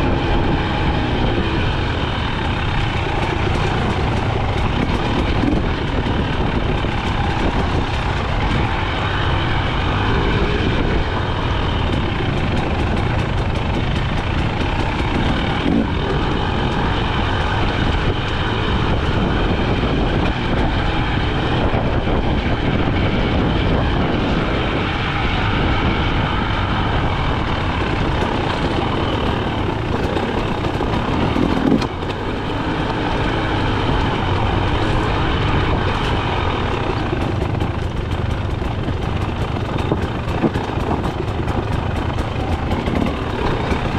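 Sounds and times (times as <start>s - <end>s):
two-stroke dirt bike engine: 0.0s - 43.9s.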